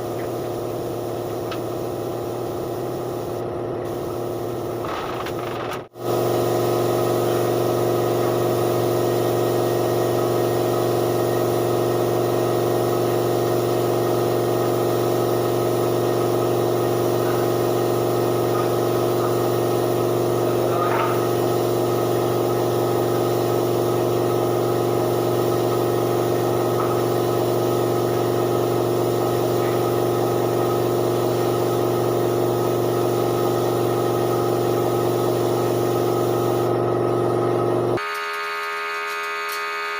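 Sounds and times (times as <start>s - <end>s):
steady motor hum: 0.0s - 39.9s.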